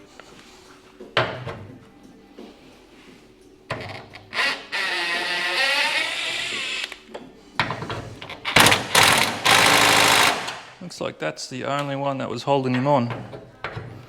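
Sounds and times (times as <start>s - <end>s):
power tool undoing a bolt: 8.5s - 10.6s.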